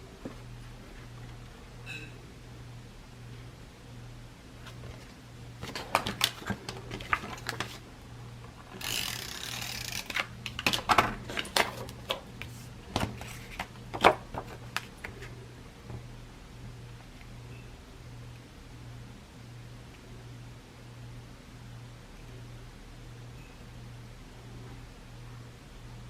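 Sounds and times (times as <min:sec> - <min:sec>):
short rasping of tape or paper: 0:08.8 - 0:10.2.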